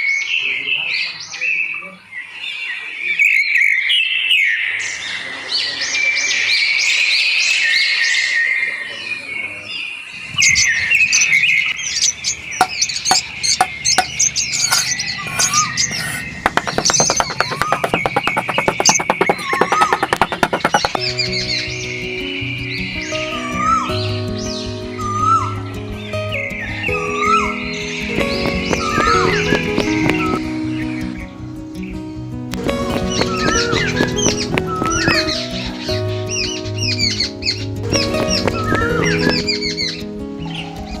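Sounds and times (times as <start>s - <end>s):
birds chirping: 9.3s - 41.0s
fast ticking: 12.6s - 21.1s, 28.2s - 30.4s, 32.6s - 35.6s, 37.9s - 39.6s
steady musical tones: 32.6s - 35.6s.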